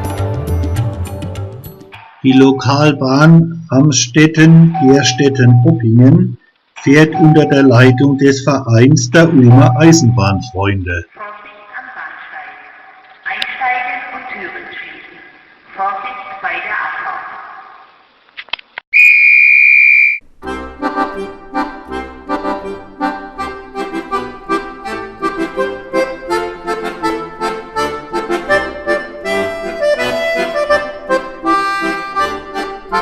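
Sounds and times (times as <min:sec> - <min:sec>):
loud high whistle: 0:18.9 - 0:20.2
accordion music with oom-pah bass: 0:20.4 - 0:33.0.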